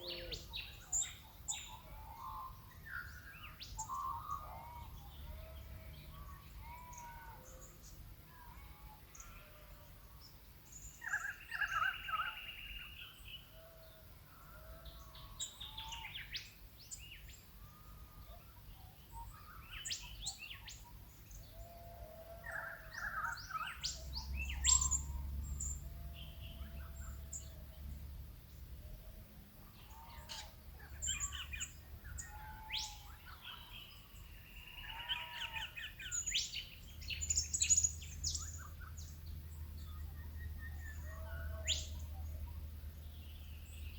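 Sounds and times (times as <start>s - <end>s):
bush birds chirping: 0.0s - 43.9s
faint low rumble: 12.9s - 35.0s
bird trilling call: 24.5s - 25.2s.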